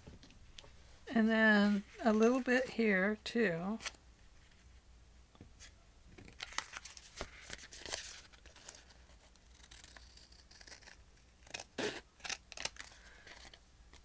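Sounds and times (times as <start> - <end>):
paper rustling: 5.6 - 10.1
scissors snipping paper: 8.6 - 14.0.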